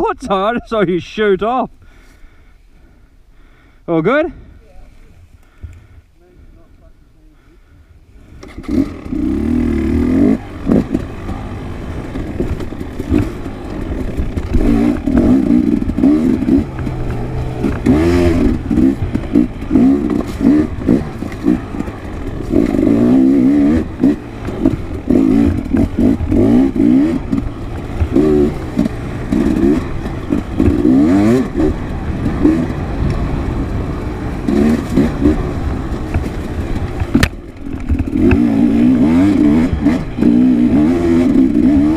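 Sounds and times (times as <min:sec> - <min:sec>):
dirt bike engine revving: 0:08.2 - 0:41.9
bike clattering over rough ground: 0:10.0 - 0:40.5.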